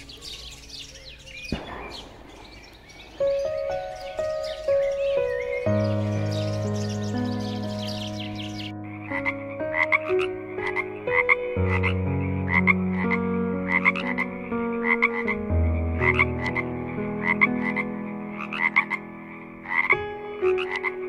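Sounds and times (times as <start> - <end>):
soft background music: 3.1 - 21.0
frog croaking: 4.4 - 21.0.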